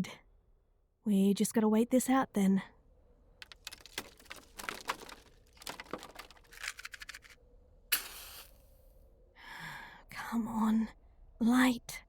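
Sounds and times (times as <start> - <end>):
twigs snapping: 3.4 - 8.6
rasping match strike: 7.9 - 8.8.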